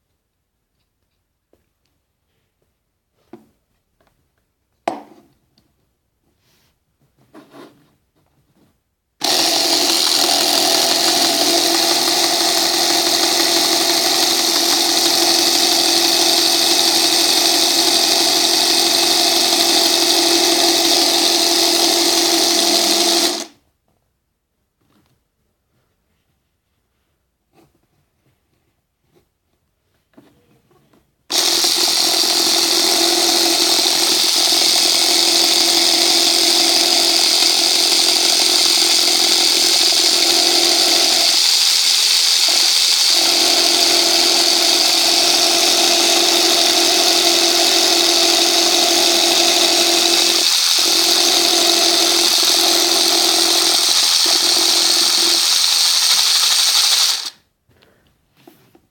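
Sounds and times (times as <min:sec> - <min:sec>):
toy electric motor whirring: 0:09.2 - 0:23.6, 0:31.3 - 0:57.4.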